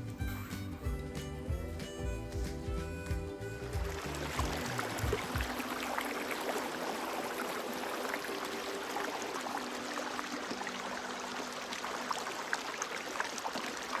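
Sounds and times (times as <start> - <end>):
campfire crackling: 3.6 - 14.0.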